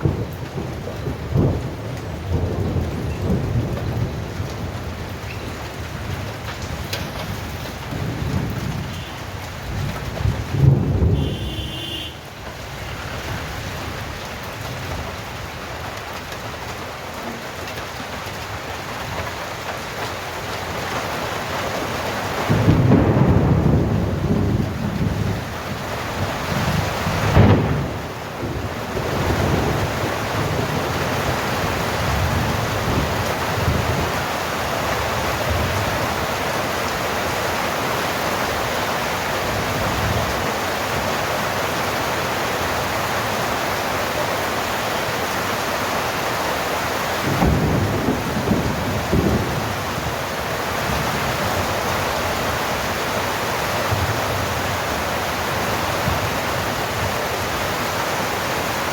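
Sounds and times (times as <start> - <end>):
sharp crack of thunder: 0.0 - 5.2, 9.6 - 11.9, 22.4 - 25.5, 26.4 - 31.4, 47.2 - 50.2
thunder rumbling: 0.0 - 15.4, 22.3 - 34.3, 47.1 - 57.2
heavy rain falling: 0.0 - 58.9.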